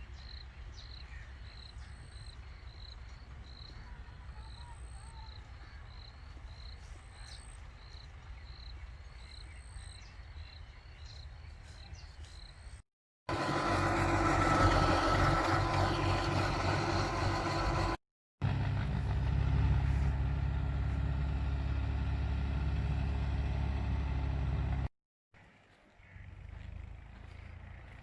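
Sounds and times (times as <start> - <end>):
tractor diesel engine running: 13.3 - 24.9, 26.0 - 28.0.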